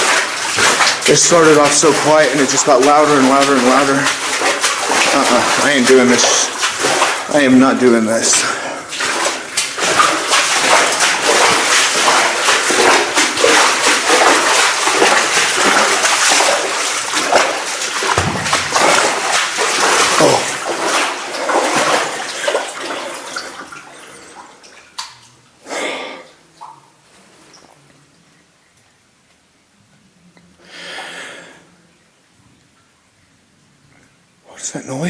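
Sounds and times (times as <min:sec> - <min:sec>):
footsteps splashing through water: 0:00.0 - 0:25.4.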